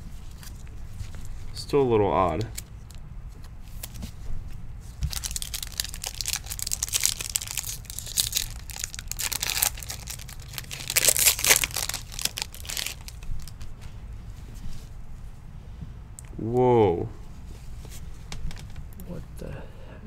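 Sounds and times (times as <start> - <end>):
wrapper crinkling and tearing: 5.0 - 13.8.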